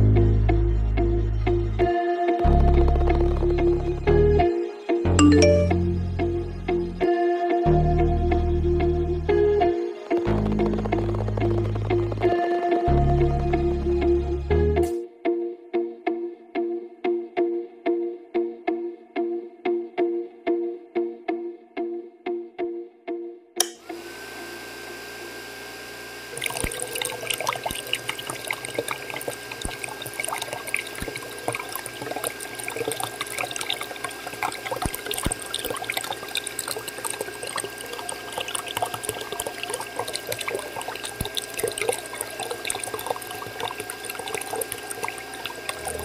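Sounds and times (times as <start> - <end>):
switch click: 23.6 - 23.8
water pouring and splashing: 26.4 - 46.0.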